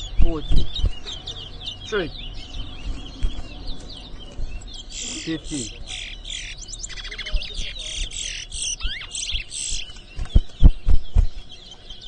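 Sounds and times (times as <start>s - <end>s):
loud dull thumps: 0.0s - 1.1s
finch chirping and trilling: 0.0s - 12.0s.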